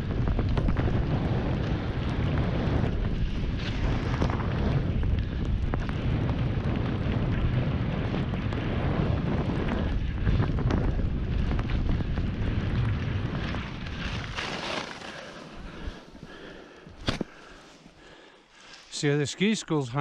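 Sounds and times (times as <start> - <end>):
wind buffeting microphone: 0.0 - 18.2
skis hissing over snow: 14.0 - 16.2.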